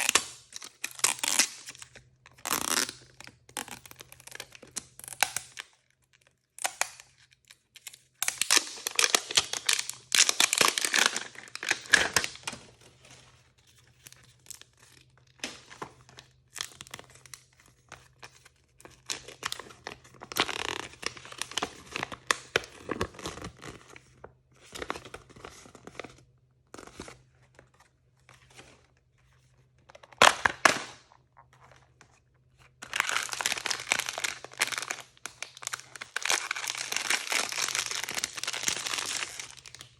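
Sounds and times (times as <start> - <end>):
plastic packaging tearing and crumpling: 0.0 - 13.1, 14.0 - 24.0, 32.8 - 39.9.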